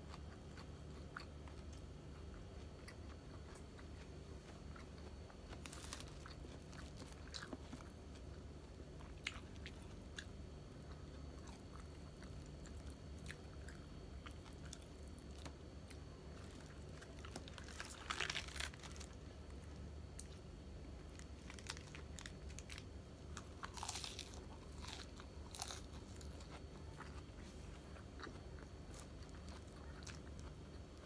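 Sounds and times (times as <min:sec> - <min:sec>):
lettuce leaves crunching: 0:05.5 - 0:07.9, 0:16.4 - 0:19.2, 0:21.2 - 0:27.6.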